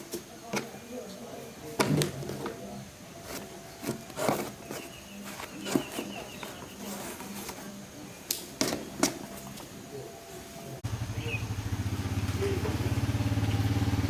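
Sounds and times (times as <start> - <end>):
faint high chirping: 2.6 - 8.3, 9.3 - 13.8.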